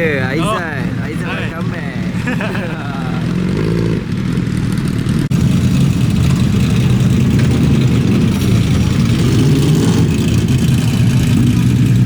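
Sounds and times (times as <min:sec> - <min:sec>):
motorcycle engine running: 0:03.0 - 0:12.0.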